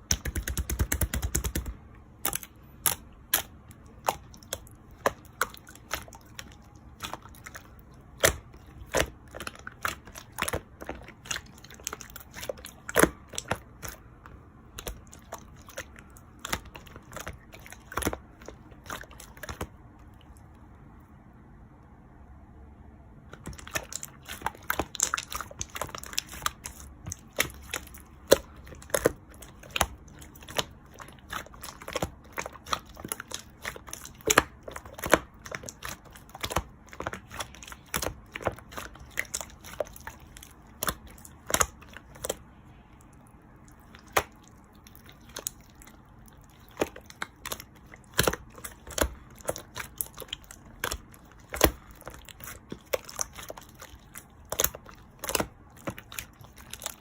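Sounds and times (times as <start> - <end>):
crinkling and crackling clicks: 23.3 - 42.4, 43.8 - 57.0.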